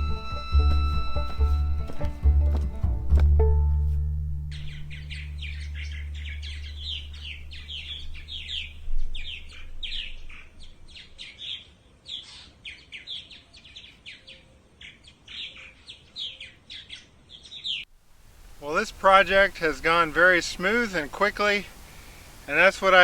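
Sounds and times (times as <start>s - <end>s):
low steady tone: 0.0s - 10.9s
small birds chirping: 4.5s - 23.0s.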